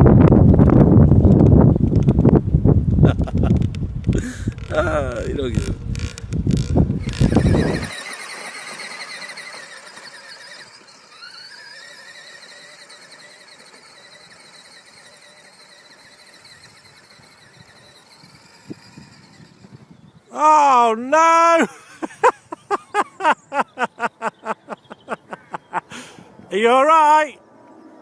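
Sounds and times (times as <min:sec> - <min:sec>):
small motorbike engines revving: 0:03.1 - 0:20.4.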